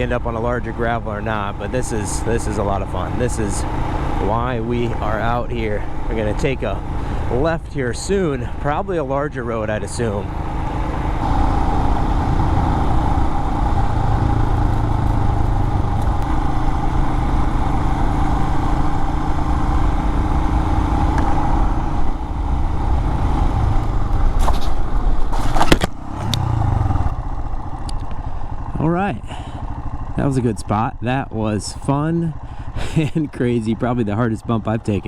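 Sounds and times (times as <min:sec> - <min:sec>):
motorcycle engine running: 0:00.0 - 0:35.0
wind and tyre noise: 0:00.0 - 0:35.0
knocks and clatter over bump: 0:14.2 - 0:16.2.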